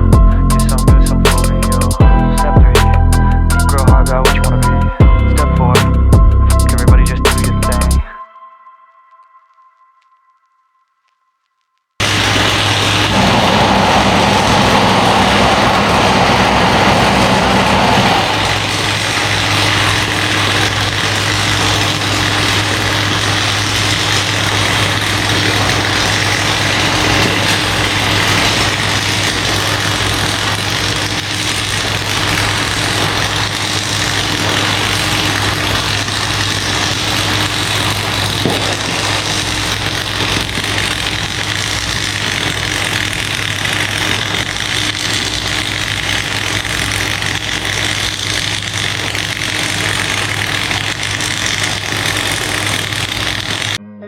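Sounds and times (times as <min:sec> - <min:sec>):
machine engine drone: 0:00.0 - 0:08.1, 0:12.0 - 0:53.8
loud rushing noise: 0:12.0 - 0:53.8.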